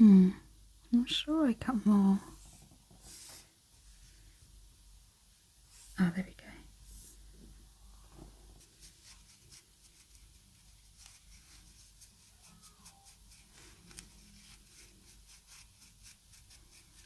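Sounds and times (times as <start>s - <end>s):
faint ticks and rustles: 8.2s - 14.6s.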